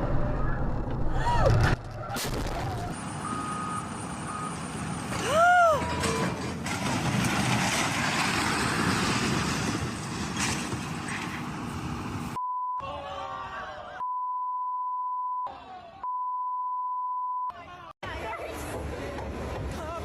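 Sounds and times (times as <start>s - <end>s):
road and vehicle noise: 0.0s - 12.4s, 17.5s - 20.0s
high-pitched beep tone: 12.4s - 12.8s, 14.0s - 17.5s.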